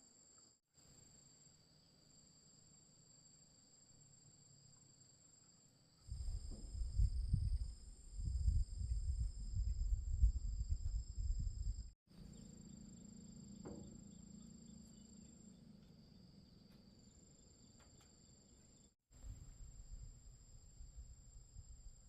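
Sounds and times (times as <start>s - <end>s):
insects trilling: 11.2s - 19.0s.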